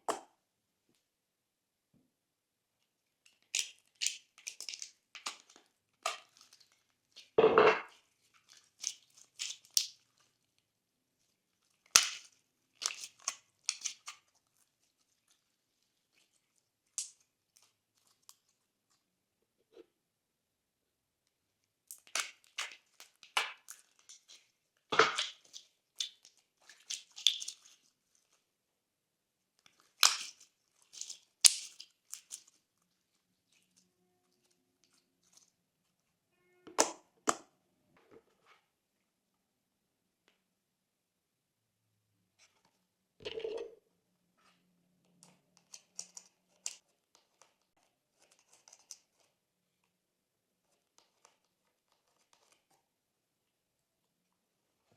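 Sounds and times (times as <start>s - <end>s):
slime squelch: 2.8s - 19.9s, 21.2s - 28.6s, 29.4s - 37.5s
slime crackling and popping: 8.5s - 10.1s, 11.8s - 14.3s, 25.0s - 27.8s, 29.7s - 32.6s.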